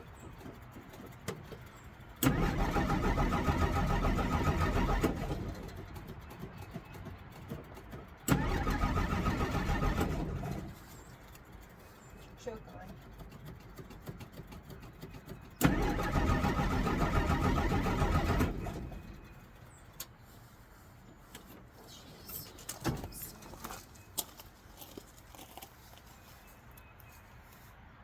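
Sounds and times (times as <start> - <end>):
engine cranking with starter: 0.4 - 6.8, 7.4 - 11.0, 13.1 - 20.0.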